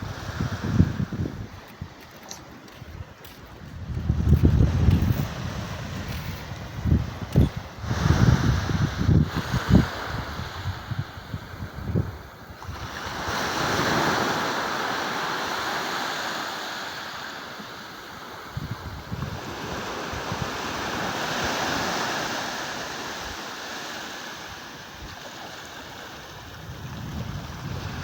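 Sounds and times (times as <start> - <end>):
wind buffeting microphone: 0.0 - 14.3, 18.4 - 21.9, 26.2 - 28.0.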